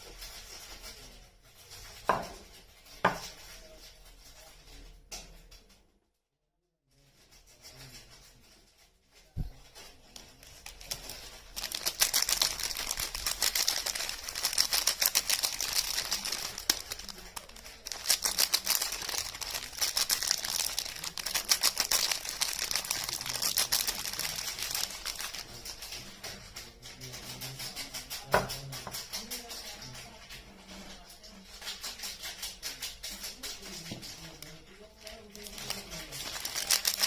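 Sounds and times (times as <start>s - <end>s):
soap wrapping crinkling and tearing: 10.1s - 25.5s, 34.4s - 37.0s.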